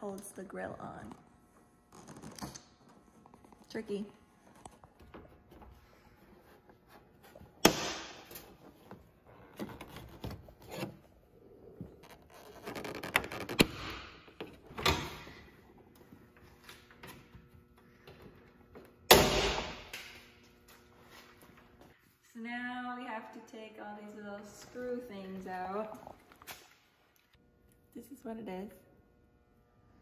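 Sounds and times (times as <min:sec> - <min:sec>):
plastic rubbing: 0:11.8 - 0:13.8.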